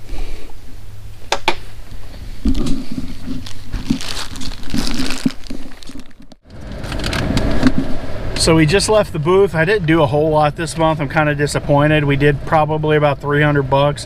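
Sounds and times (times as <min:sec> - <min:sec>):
goods crinkling and rustling: 0:02.0 - 0:07.9.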